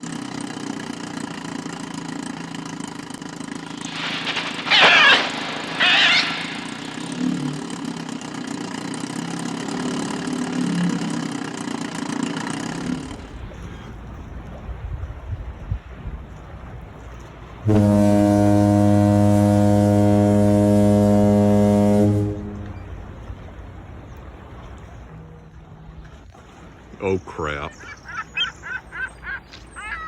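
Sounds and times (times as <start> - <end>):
low engine-like hum: 0.0 - 30.0
harsh animal calls: 3.8 - 7.7.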